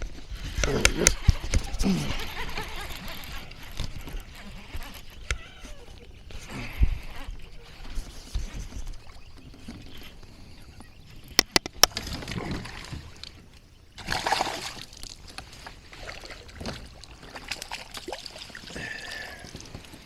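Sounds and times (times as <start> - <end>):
water splashing and sloshing: 0.0 - 20.0
sharp clicks: 11.4 - 12.0.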